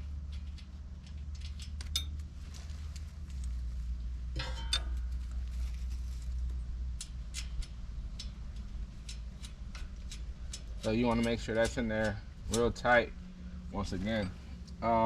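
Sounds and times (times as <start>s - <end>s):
metal clinks and taps: 0.2s - 2.3s, 4.4s - 5.4s.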